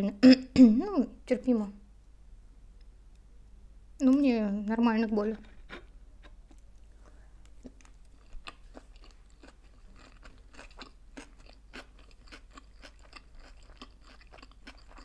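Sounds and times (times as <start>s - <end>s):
chewing food: 5.4s - 15.0s.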